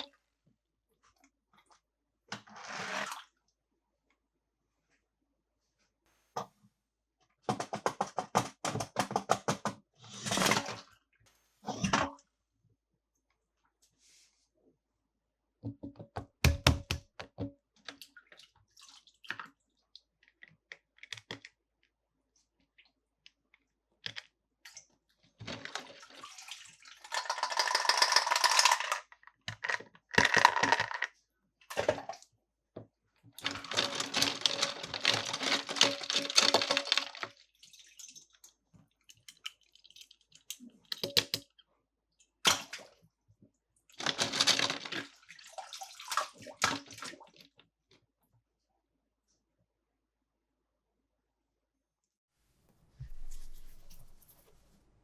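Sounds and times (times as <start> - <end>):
plastic packaging crinkling: 33.4 - 37.3, 44.0 - 45.0.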